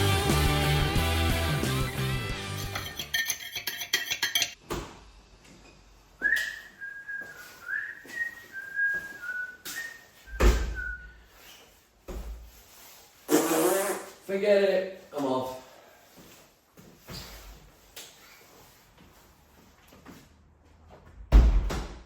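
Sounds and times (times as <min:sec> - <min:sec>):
person whistling a tune: 0:06.2 - 0:11.2.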